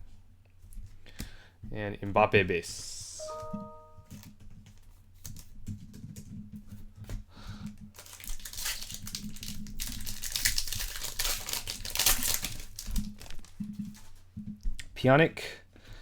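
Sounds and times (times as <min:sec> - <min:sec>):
foil wrappers crinkling and tearing: 0:07.9 - 0:14.2.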